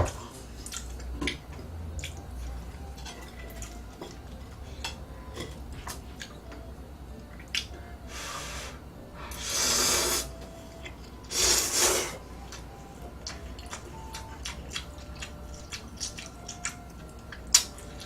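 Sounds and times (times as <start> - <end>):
short hissing rushes: 9.4 - 10.3.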